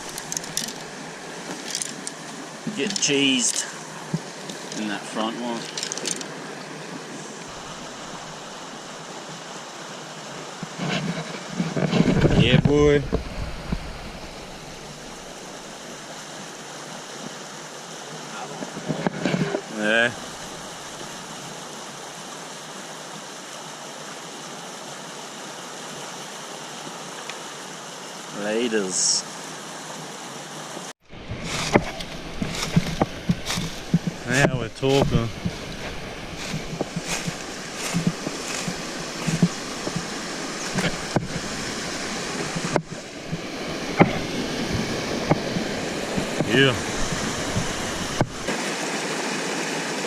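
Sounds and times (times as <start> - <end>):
creek water rushing: 0.0 - 50.0
sharp clicks and knocks: 31.6 - 41.5.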